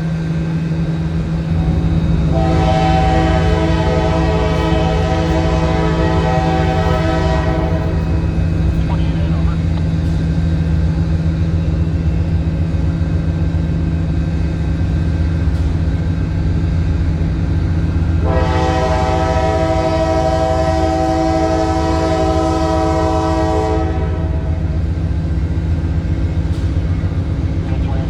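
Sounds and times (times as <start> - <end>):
diesel locomotive engine drone: 0.0 - 28.0
multi-tone train horn: 1.6 - 8.6, 18.0 - 25.0.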